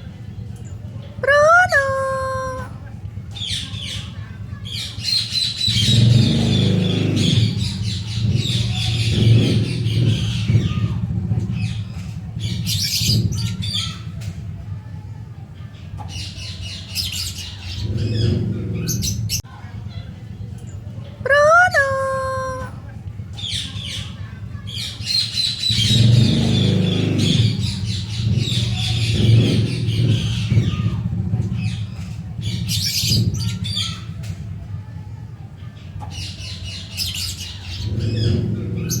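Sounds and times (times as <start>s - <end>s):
steady low hum: 0.0s - 21.3s
birds chirping and squawking: 0.0s - 39.0s.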